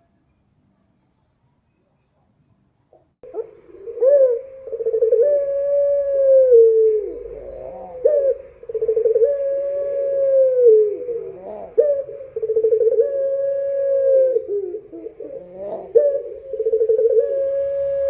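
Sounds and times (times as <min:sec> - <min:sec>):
dove cooing: 0:03.2 - 0:18.0.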